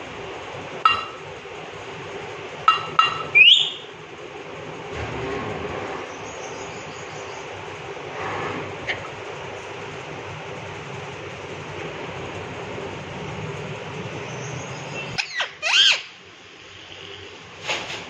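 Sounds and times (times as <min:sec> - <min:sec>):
rumbling background noise: 0:00.0 - 0:18.0
parakeet calling loudly: 0:15.1 - 0:16.2.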